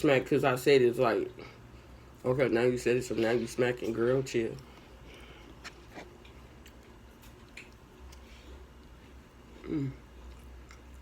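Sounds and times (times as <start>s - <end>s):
person chewing food: 4.6s - 11.0s.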